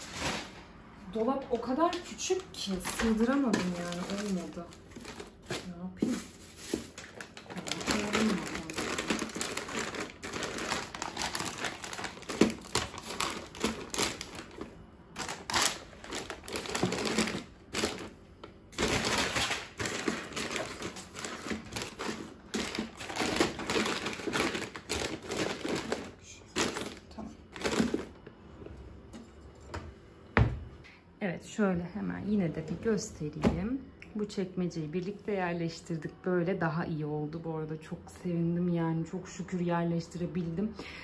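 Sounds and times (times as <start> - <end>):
plastic containers clacking: 1.5 - 18.1, 18.8 - 28.2
packaging crinkling: 2.3 - 28.2.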